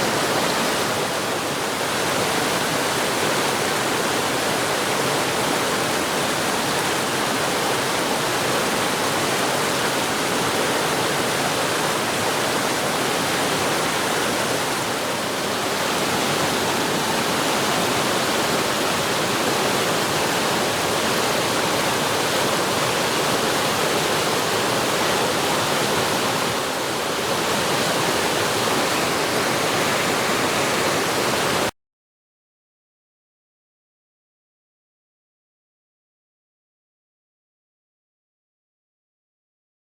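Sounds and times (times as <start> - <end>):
waterfall rushing: 0.0 - 31.7.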